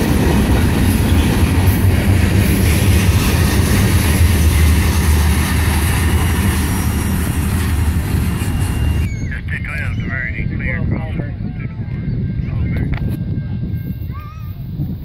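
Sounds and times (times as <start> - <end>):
train wheels rumbling on rail: 0.0 - 9.3.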